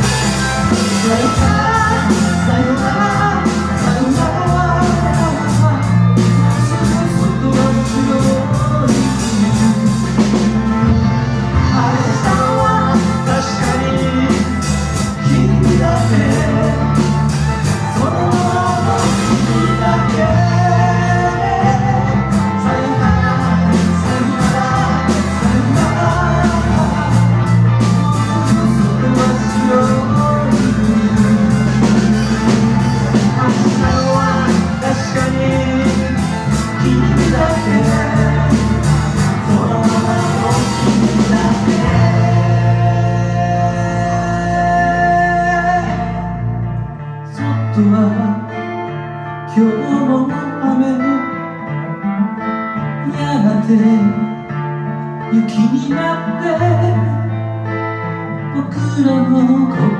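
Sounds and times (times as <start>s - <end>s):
drum kit beat: 0.0s - 44.7s
live rock band playing: 0.0s - 59.9s.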